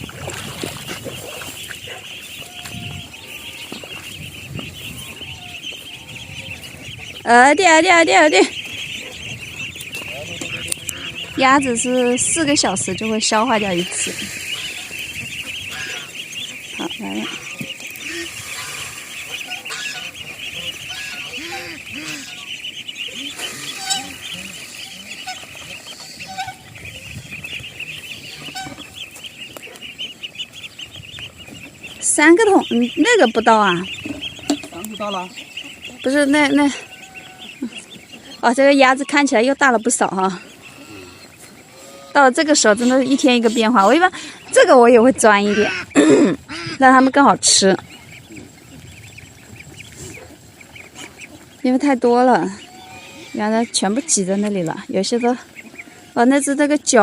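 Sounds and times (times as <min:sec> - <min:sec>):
chickens and ducks clucking: 0:00.0 - 0:57.0
dense high chirping: 0:01.4 - 0:54.0.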